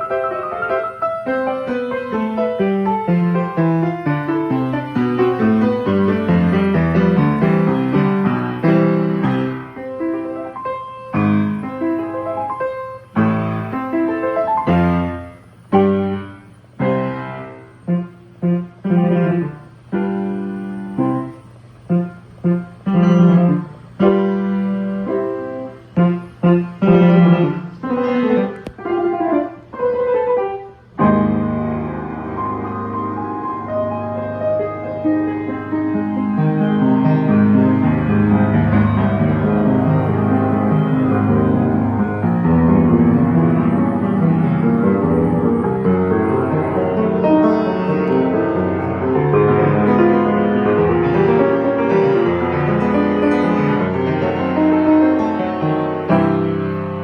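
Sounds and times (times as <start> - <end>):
player piano playing chords: 0.0 - 57.0.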